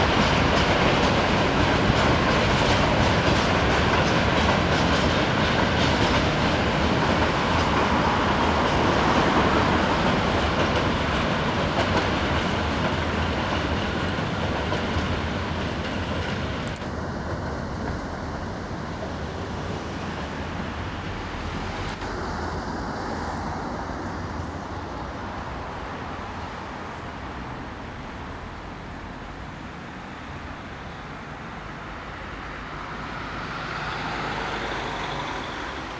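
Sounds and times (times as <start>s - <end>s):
train rolling past on track: 0.0s - 35.9s.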